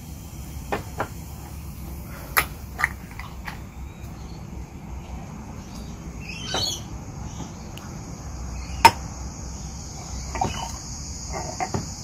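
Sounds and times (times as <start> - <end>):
high insect drone: 0.0 - 12.0
bird call: 5.6 - 9.0, 9.6 - 11.8.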